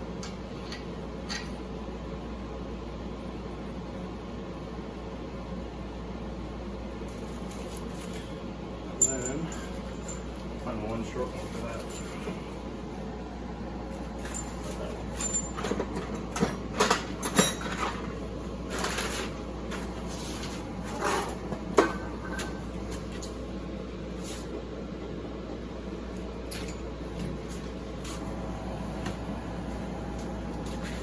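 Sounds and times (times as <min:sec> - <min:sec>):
steady low hum: 0:00.0 - 0:31.0
metal tools clinking: 0:09.0 - 0:10.5, 0:14.2 - 0:19.8.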